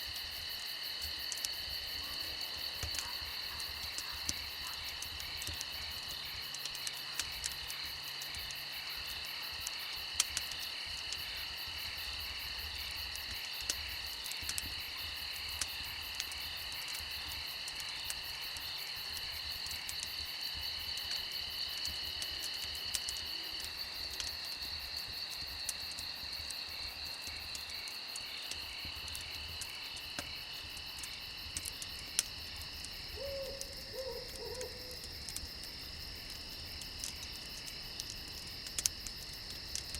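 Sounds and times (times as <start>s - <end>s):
crickets chirping: 0.0s - 39.9s
fire crackling: 0.0s - 39.9s
low animal calls: 33.1s - 35.0s.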